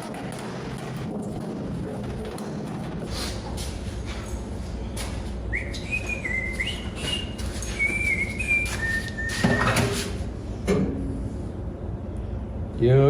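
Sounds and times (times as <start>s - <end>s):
steady low hum: 0.0s - 13.0s
person whistling a tune: 5.5s - 10.0s.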